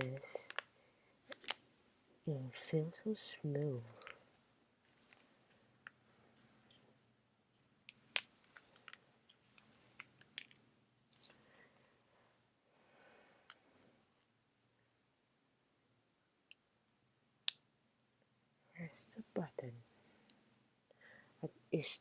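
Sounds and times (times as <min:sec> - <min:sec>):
small plastic clicks: 0:00.2 - 0:01.6.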